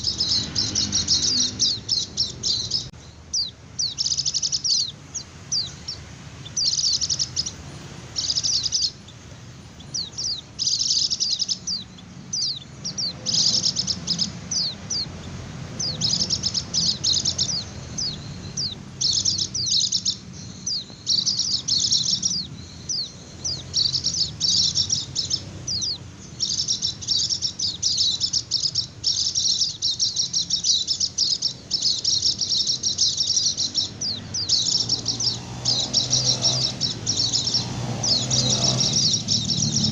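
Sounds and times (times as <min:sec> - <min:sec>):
bird high chattering song: 0:00.0 - 0:39.9.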